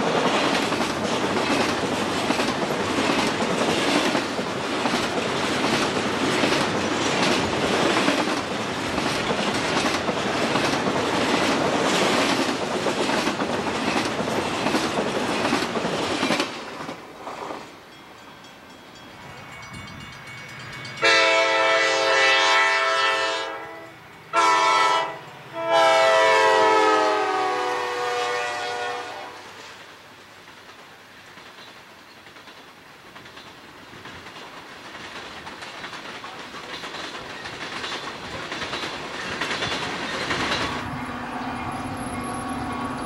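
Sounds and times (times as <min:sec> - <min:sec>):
train wheels clickety-clack: 0:00.0 - 0:17.8, 0:29.8 - 0:43.0
locomotive air horn: 0:21.0 - 0:29.6.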